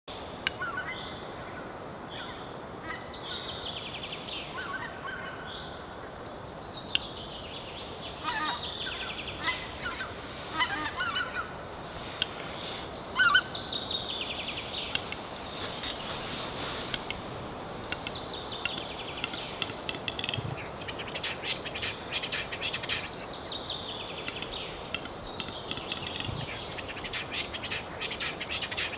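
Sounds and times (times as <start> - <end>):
steady hiss: 5.7 - 28.9
rapid high rattling bird calls: 8.1 - 23.3
goose honking: 9.4 - 11.6.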